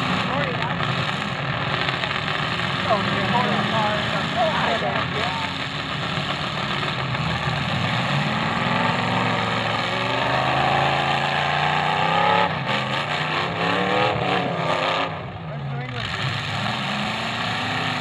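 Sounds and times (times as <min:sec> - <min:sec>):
car engines revving hard: 0:00.0 - 0:18.0.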